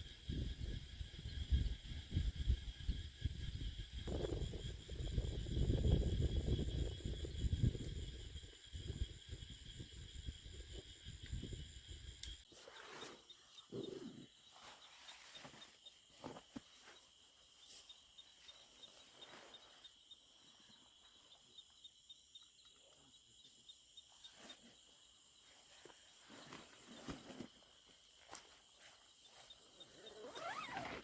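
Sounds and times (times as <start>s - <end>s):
high-pitched insect trilling: 0.0s - 16.1s, 27.7s - 31.0s.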